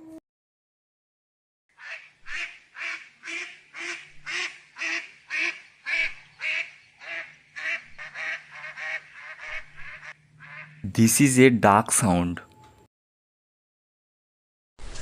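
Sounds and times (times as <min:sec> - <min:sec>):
duck quacking: 0:01.8 - 0:11.0.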